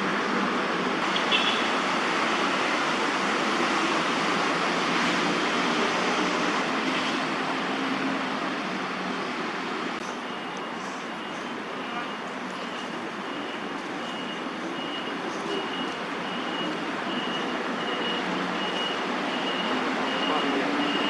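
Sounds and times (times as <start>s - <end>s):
distant road traffic: 0.0s - 21.0s.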